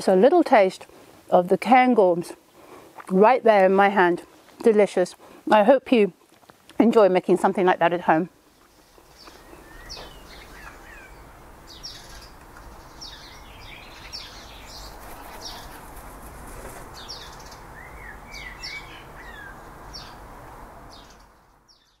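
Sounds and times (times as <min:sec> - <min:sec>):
steady background hiss: 0:00.0 - 0:21.8
small birds chirping: 0:08.1 - 0:20.3, 0:20.9 - 0:22.0.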